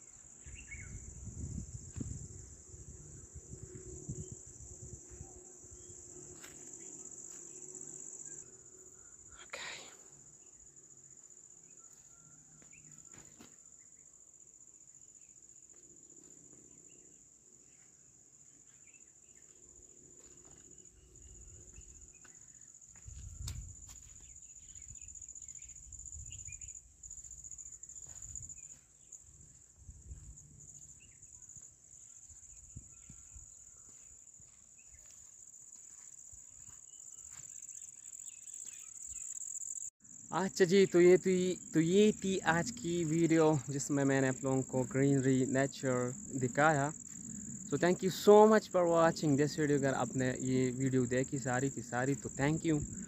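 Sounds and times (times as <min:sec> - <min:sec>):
crickets trilling: 0:00.0 - 0:53.0
wind rumble on microphone: 0:00.5 - 0:06.0, 0:23.0 - 0:24.0, 0:29.3 - 0:30.7.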